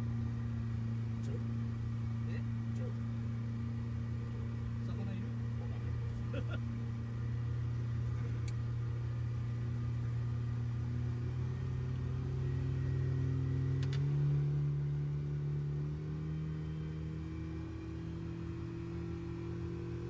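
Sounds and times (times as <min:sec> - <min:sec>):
boat engine running: 0:00.0 - 0:14.2.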